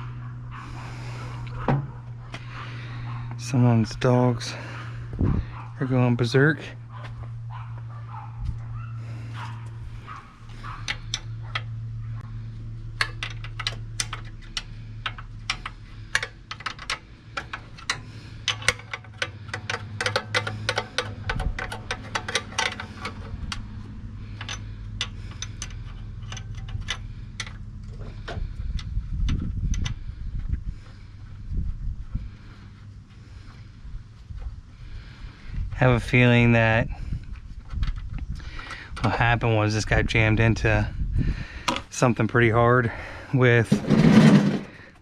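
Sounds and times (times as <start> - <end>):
steady low hum: 0.0 - 45.0
tools and metal parts clinking: 9.4 - 11.8, 12.9 - 30.0.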